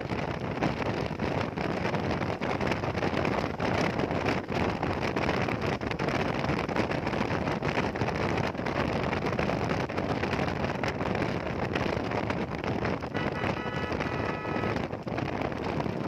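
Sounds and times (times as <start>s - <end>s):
road noise: 0.0s - 16.0s
wind rushing over microphone: 0.0s - 16.0s
short high steady tone: 13.1s - 14.8s.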